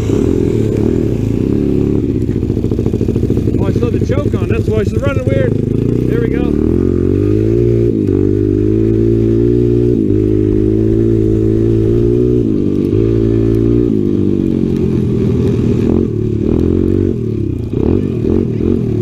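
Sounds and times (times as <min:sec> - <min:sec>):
dirt-bike engine revving: 0:00.0 - 0:19.0.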